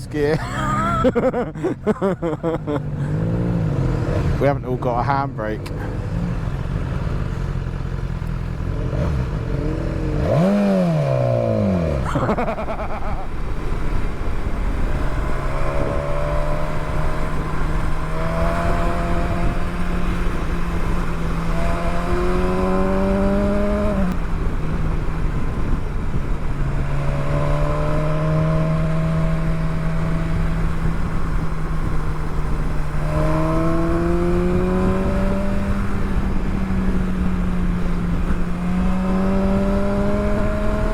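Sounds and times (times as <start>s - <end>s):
motorcycle engine revving: 2.8s - 4.5s, 5.4s - 40.9s
wind noise: 8.7s - 40.9s.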